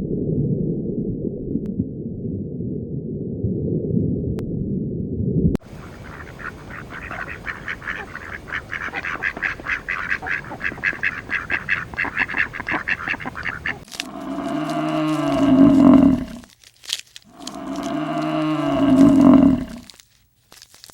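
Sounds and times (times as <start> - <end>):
ducks or geese calling: 5.6 - 16.4
cow mooing: 13.4 - 16.4, 17.3 - 19.9.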